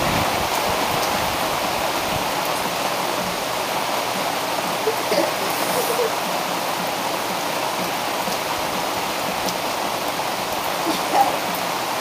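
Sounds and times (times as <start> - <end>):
heavy rain hiss: 0.0 - 12.0
faint raindrop ticks: 0.5 - 1.2, 6.1 - 11.8.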